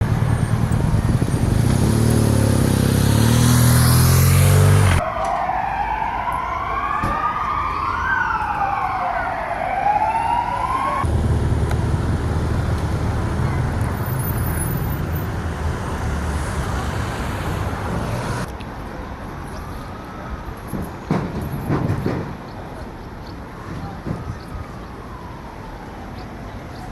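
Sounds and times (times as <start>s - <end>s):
street ambience: 0.0s - 26.9s
traffic rumble: 0.0s - 26.9s
emergency siren wailing: 3.6s - 11.1s, 23.5s - 26.8s.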